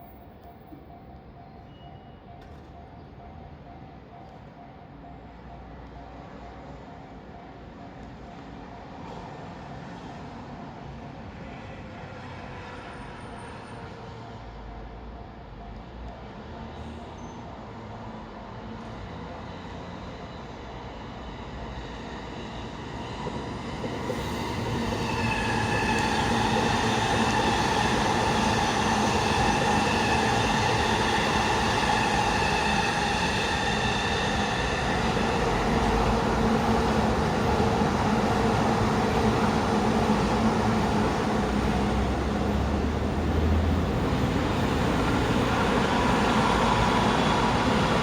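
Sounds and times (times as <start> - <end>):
train wheels rumbling on rails: 15.5 - 48.0.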